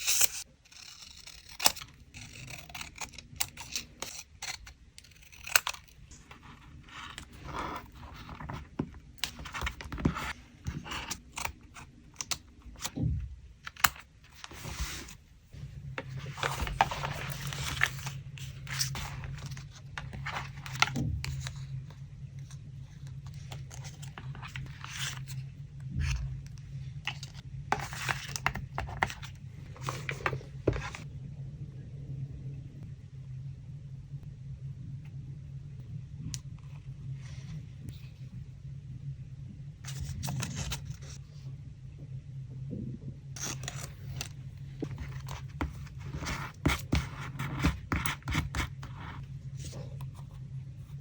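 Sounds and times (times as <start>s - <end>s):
low steady hum: 0.0s - 51.0s
paper rustling and tearing: 16.0s - 21.7s.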